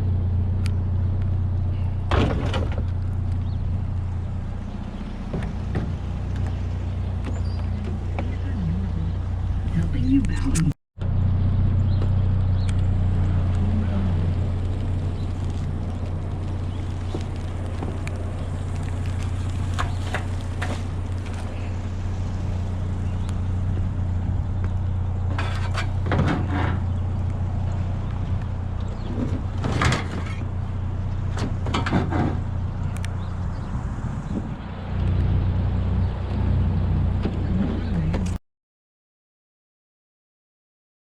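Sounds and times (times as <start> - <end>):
truck engine and road noise: 0.0 - 38.4
clunks and rattles: 1.1 - 8.6, 14.5 - 33.7.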